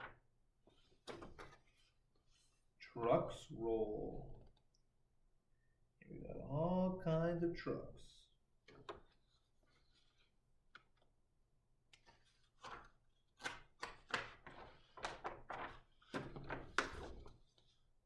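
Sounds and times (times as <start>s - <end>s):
pages rustling: 12.0s - 17.8s.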